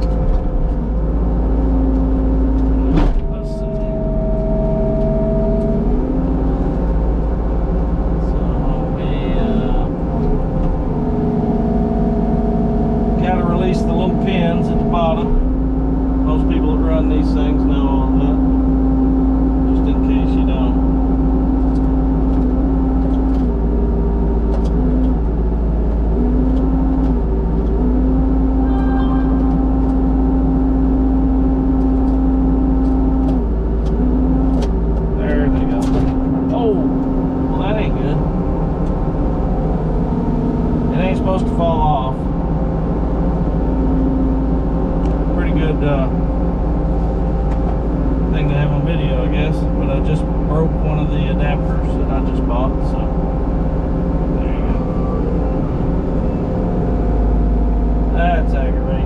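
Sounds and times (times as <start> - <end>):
skid steer engine running: 0.0 - 59.0
brief higher whine: 28.5 - 30.2.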